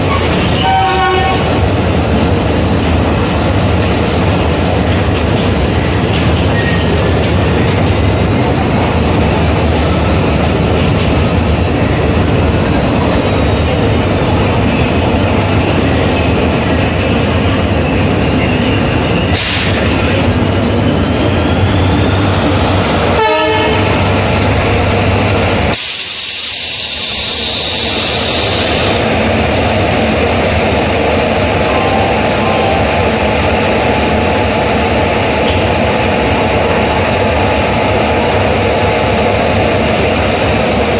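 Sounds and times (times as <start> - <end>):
train coaches rumbling past: 0.0 - 40.9.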